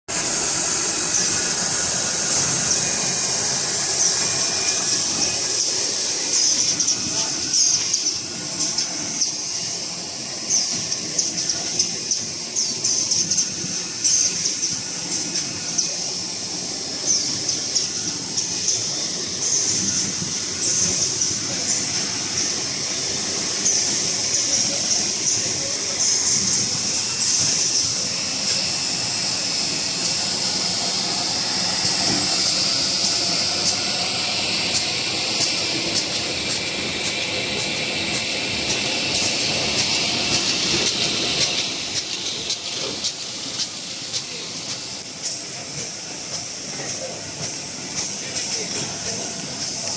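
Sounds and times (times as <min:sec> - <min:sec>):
machine running with high hiss: 0:00.1 - 0:49.9
quick machine clicks and ticks: 0:34.6 - 0:49.9.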